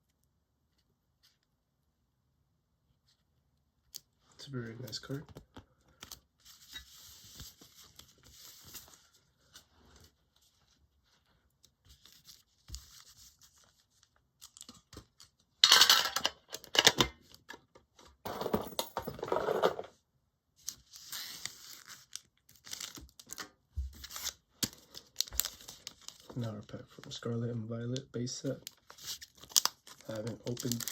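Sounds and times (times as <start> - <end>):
foil wrapper rustling: 28.7 - 30.9
foil wrapper tearing: 28.7 - 30.9.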